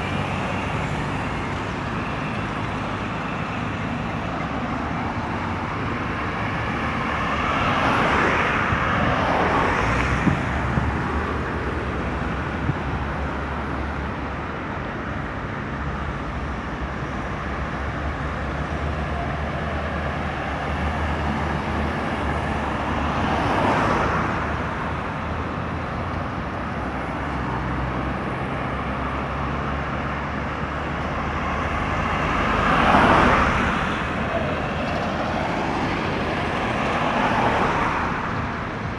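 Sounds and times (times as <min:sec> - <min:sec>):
highway traffic rumble: 0:00.0 - 0:38.9
vehicles passing close by: 0:00.0 - 0:38.9.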